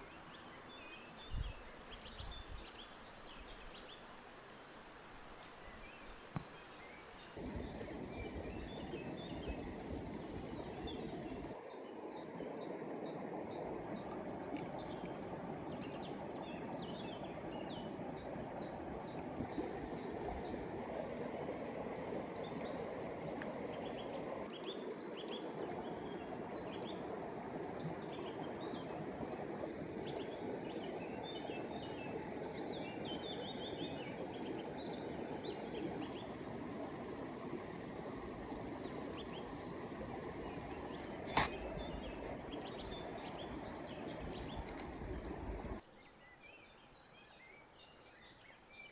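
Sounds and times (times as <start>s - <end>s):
small birds chirping: 0.0s - 7.4s, 40.4s - 45.1s
creek water running: 0.0s - 48.9s.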